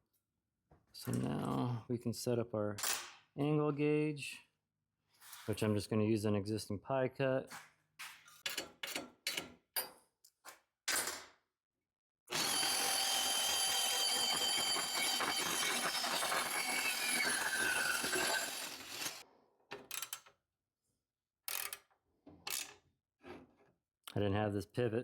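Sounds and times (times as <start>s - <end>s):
band saw cutting metal tubing: 12.3s - 19.2s.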